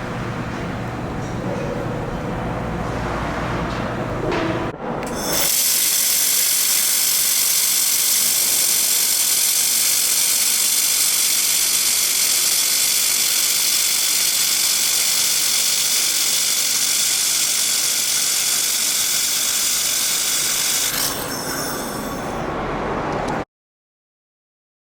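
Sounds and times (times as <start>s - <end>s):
laser welding machine hissing: 5.1s - 22.3s.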